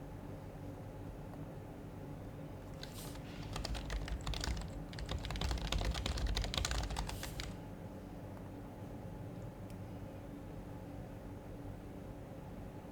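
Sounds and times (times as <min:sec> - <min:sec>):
soft muted keyboard typing: 0:02.7 - 0:07.6.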